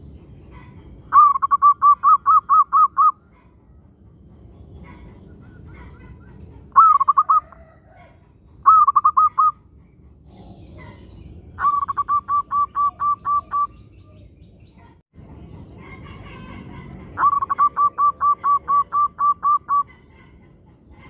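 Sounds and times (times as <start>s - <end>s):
dove cooing: 0.6s - 3.2s, 4.8s - 9.6s, 11.6s - 14.2s, 16.0s - 20.5s.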